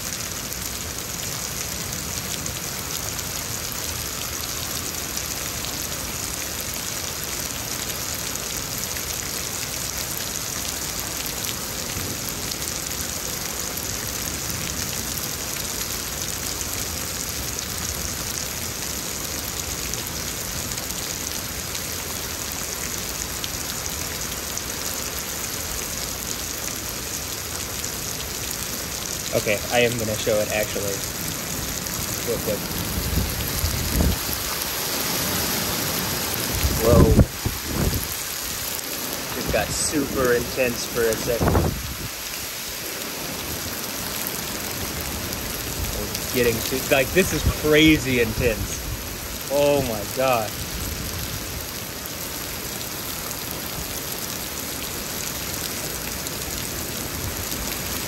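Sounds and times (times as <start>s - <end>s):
heavy rain pouring: 0.0s - 58.0s
hail falling: 0.4s - 58.0s.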